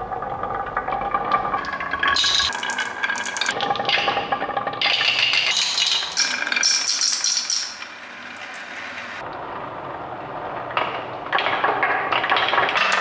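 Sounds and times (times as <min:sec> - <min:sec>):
toy pieces rattling and clinking: 0:05.5 - 0:07.9.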